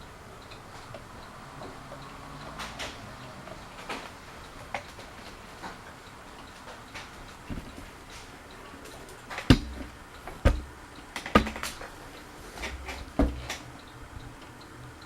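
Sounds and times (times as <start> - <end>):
sharp knocks and clicks: 6.6 - 14.0
short low thuds: 9.5 - 10.8, 12.6 - 13.5.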